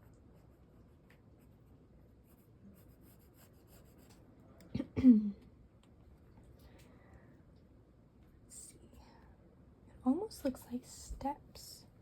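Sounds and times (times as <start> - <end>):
pencil scratching on paper: 0.0 - 4.2.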